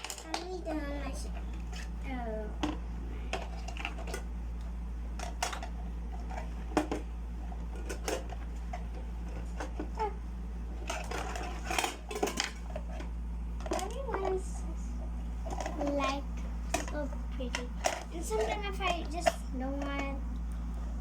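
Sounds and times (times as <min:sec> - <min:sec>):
plastic toy pieces clattering: 0:00.0 - 0:00.5, 0:10.9 - 0:12.6
steady low hum: 0:00.0 - 0:21.0.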